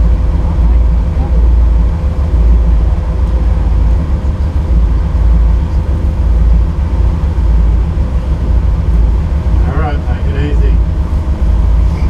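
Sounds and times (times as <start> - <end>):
faint steady whine: 0.0 - 12.0
vehicle engine rumbling: 0.0 - 12.0.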